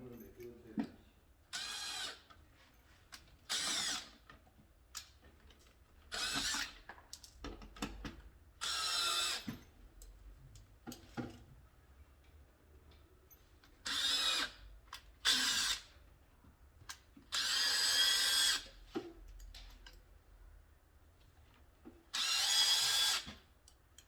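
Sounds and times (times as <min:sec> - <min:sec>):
electric drill whirring: 0:01.5 - 0:02.2, 0:03.5 - 0:04.2, 0:06.1 - 0:06.7, 0:08.6 - 0:09.5, 0:13.8 - 0:14.6, 0:15.2 - 0:15.9, 0:17.3 - 0:18.8, 0:22.1 - 0:23.4.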